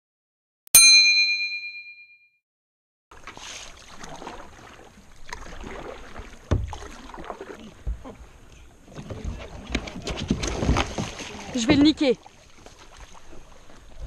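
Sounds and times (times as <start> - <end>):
bright bell ding: 0.8 - 2.3.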